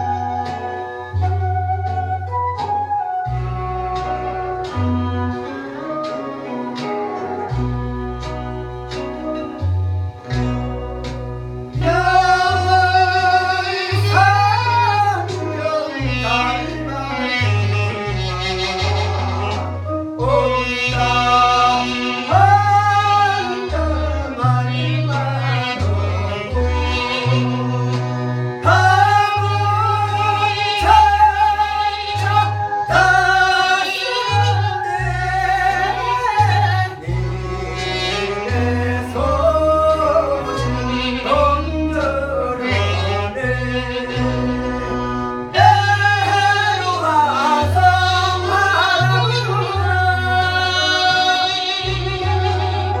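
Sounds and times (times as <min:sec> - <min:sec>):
amplified accompaniment with bass line: 0:00.0 - 0:53.0
person singing: 0:11.7 - 0:53.0.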